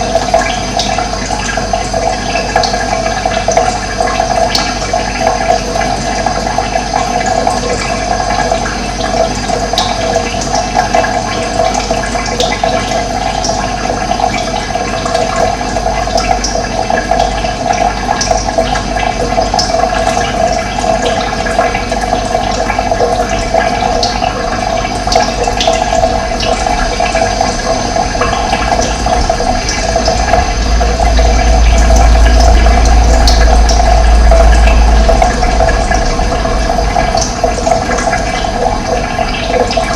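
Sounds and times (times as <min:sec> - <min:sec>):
running water rushing: 0:00.0 - 0:39.9
low rumble: 0:23.1 - 0:39.9.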